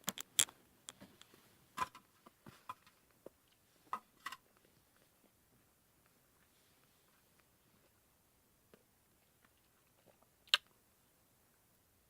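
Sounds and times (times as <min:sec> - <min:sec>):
handling clicks and crackles: 0:00.0 - 0:02.0.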